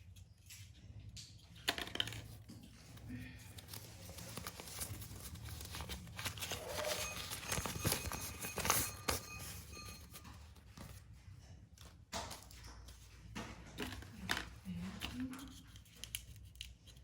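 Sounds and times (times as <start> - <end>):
plastic packets crinkling: 1.9 - 11.0.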